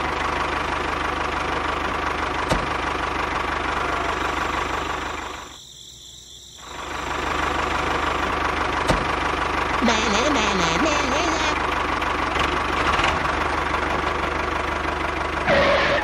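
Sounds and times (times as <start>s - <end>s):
small engine running: 6.6s - 16.0s.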